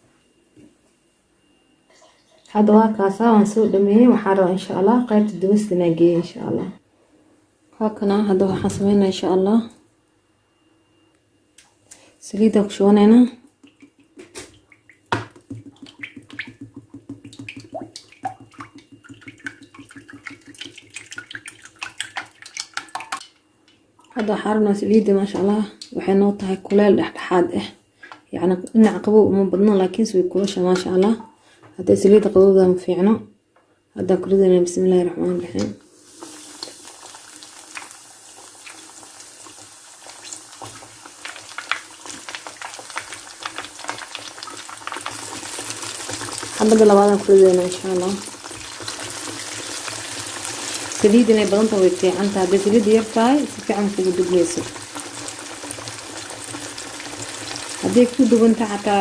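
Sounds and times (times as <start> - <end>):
water splashing: 13.7 - 23.2, 36.0 - 58.6
chicken frying in hot oil: 15.4 - 23.2, 36.0 - 59.0.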